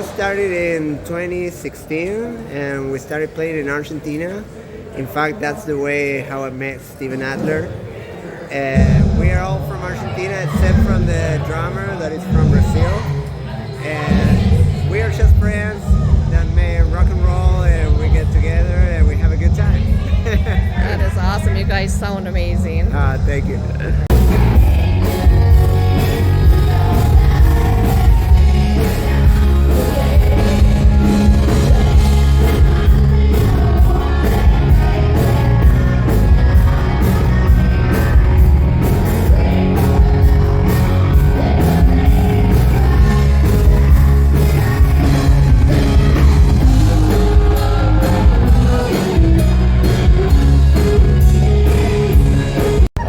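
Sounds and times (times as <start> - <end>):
drums: 8.5 - 53.0
lead vocal singing: 12.3 - 16.5, 23.9 - 52.9
rock band playing: 14.0 - 53.0.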